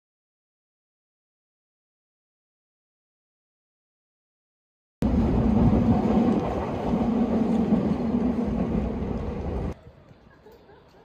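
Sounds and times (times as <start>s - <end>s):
electric train rumbling past: 5.0s - 9.8s
train hum: 5.0s - 9.8s.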